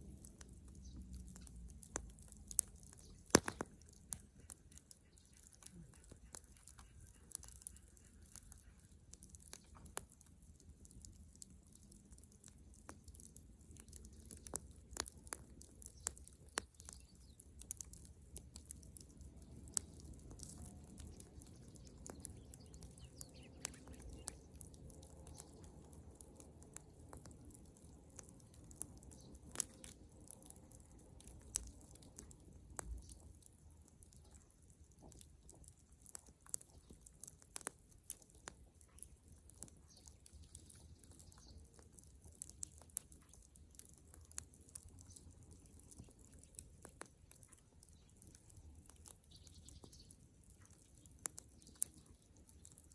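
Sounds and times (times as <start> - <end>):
bonfire crackling: 0.0 - 52.9.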